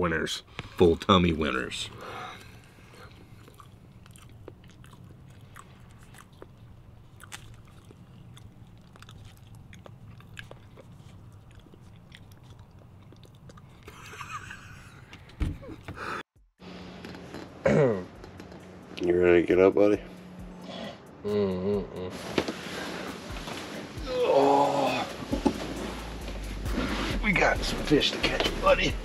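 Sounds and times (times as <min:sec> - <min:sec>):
people chewing: 0:02.0 - 0:16.1.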